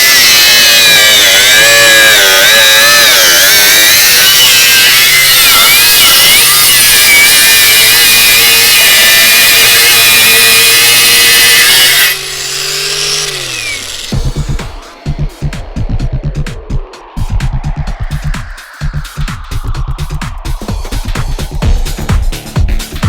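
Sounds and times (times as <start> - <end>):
angle grinder under load: 0.0 - 15.0.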